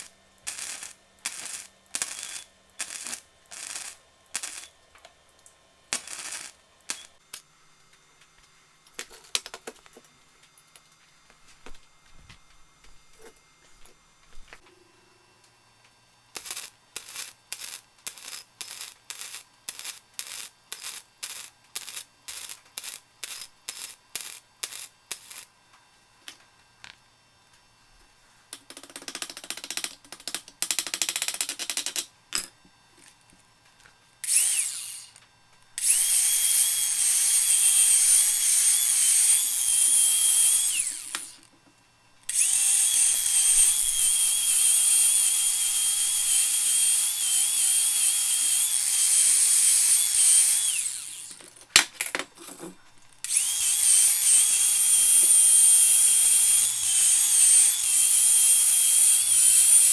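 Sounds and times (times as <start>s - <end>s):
hand tool ratcheting: 28.6s - 32.5s, 34.2s - 35.2s, 35.8s - 41.5s, 42.3s - 59.9s
power tool whining and hissing: 34.2s - 41.5s, 42.3s - 51.5s, 52.5s - 59.9s.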